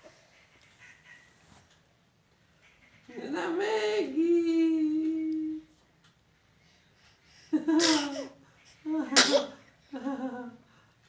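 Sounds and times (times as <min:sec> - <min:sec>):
person sneezing: 0:09.2 - 0:09.5.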